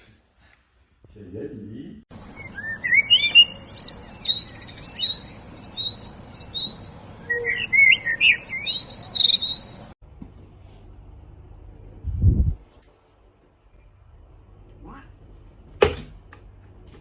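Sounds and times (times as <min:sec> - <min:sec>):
birds chirping and twittering: 0:02.1 - 0:10.0.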